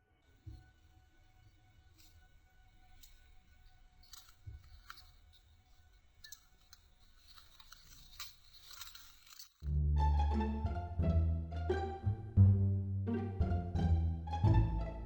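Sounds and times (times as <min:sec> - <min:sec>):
faint clicks and rustles: 0:01.4 - 0:09.7
plucked string music: 0:09.7 - 0:15.0.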